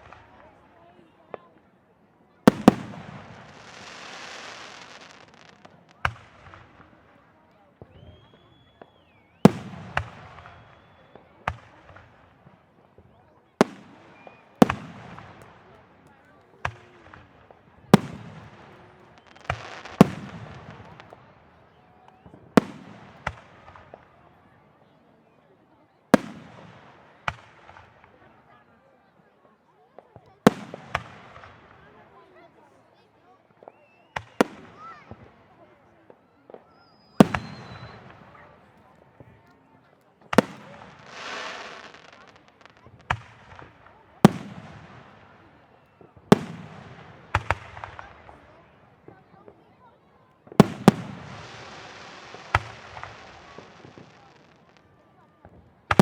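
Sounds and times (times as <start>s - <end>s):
fireworks bursting with bangs: 2.4s - 24.2s, 26.2s - 28.3s, 30.0s - 32.1s, 33.6s - 49.6s, 50.4s - 56.0s
fireworks crackling: 2.4s - 24.2s, 36.1s - 49.6s, 50.4s - 56.0s
fireworks booming: 2.5s - 6.9s, 50.5s - 54.8s.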